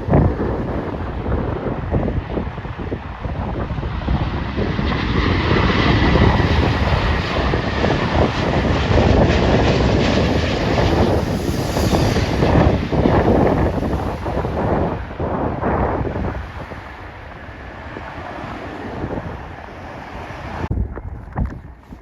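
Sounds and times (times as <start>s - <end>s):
jet engines rumbling: 0.0s - 22.0s
wind buffeting microphone: 0.0s - 22.0s
thin jet whine: 4.9s - 20.7s.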